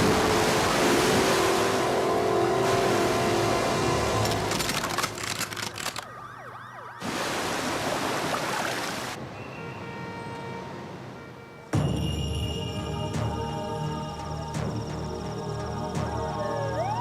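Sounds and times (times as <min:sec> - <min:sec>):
siren wailing: 0:05.8 - 0:07.1, 0:15.5 - 0:17.0.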